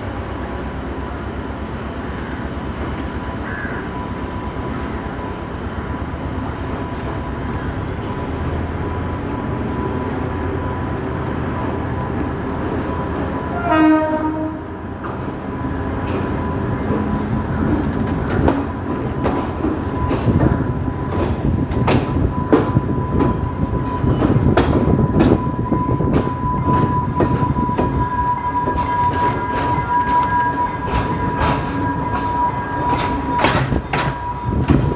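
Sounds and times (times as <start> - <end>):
diesel train rumble: 0.0 - 34.9
wheels clattering over rail joints: 11.0 - 34.9
train horn blast: 13.5 - 14.8.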